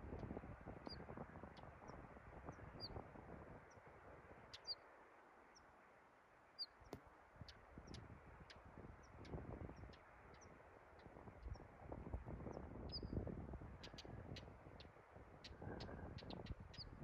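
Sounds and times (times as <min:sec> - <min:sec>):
small bird chirping: 0:04.5 - 0:04.8, 0:13.8 - 0:17.0.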